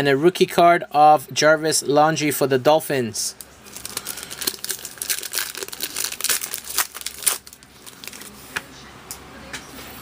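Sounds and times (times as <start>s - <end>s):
plastic packaging crinkling and tearing: 3.6s - 8.4s.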